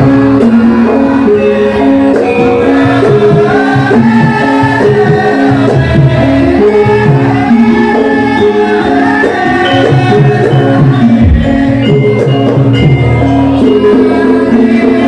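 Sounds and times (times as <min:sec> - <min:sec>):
tuned metal percussion: 0:09.5 - 0:14.2.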